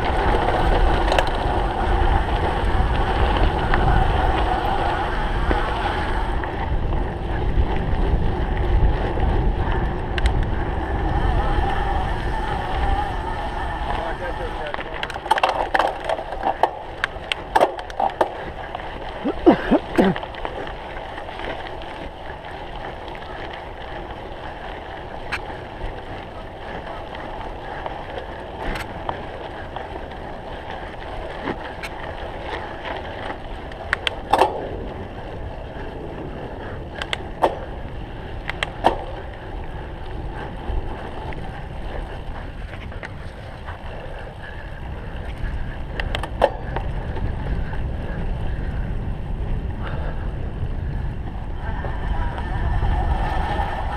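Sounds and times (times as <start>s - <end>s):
bike rattling and knocking: 0.0s - 53.9s
tyre and wind noise: 0.0s - 53.9s.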